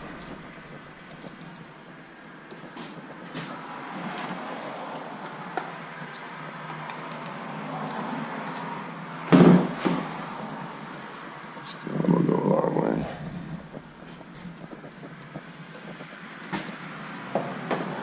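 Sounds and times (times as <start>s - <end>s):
handling noises with clicks: 4.9s - 8.9s.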